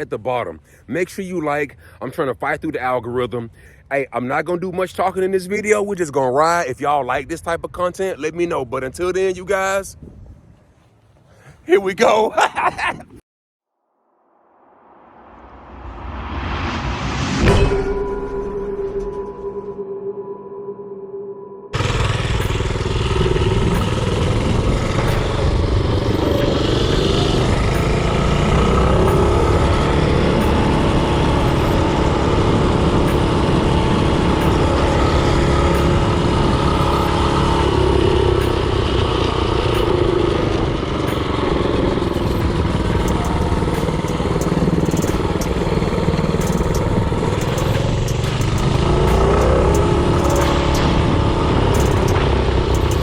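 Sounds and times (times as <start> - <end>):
wind noise on microphone: 9.8 - 10.9, 22.7 - 36.8
small engine running: 21.7 - 53.0.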